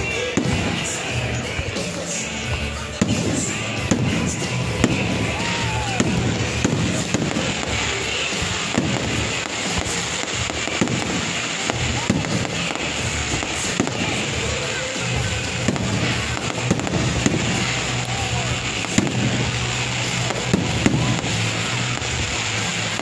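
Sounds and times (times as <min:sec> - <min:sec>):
background music: 0:00.0 - 0:23.0
fireworks bursting: 0:00.0 - 0:23.0
voices: 0:00.0 - 0:23.0.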